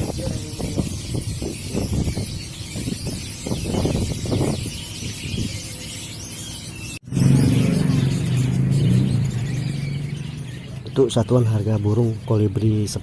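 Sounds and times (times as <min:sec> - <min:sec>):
small caged birds chirping: 0:00.0 - 0:13.0
passing traffic: 0:07.0 - 0:12.3.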